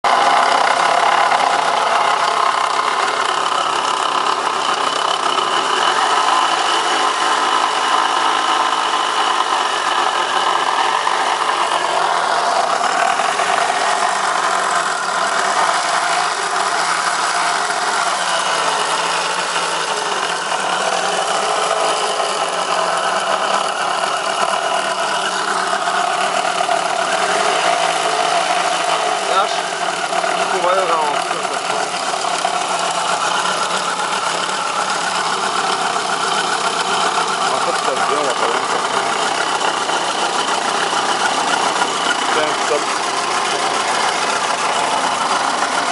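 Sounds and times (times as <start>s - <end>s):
car engine running: 0.0s - 45.9s.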